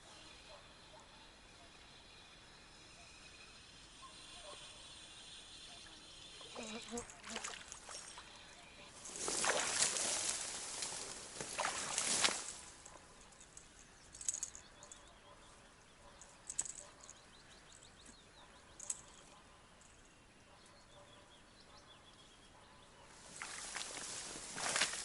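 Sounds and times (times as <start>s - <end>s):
faint bird chirps: 0.0s - 11.0s
water sloshing from wading: 6.4s - 12.8s, 23.3s - 25.0s.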